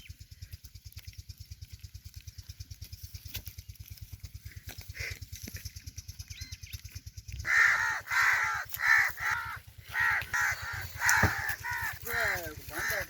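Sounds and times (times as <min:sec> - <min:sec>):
crows cawing: 0:04.5 - 0:05.4, 0:07.4 - 0:13.0.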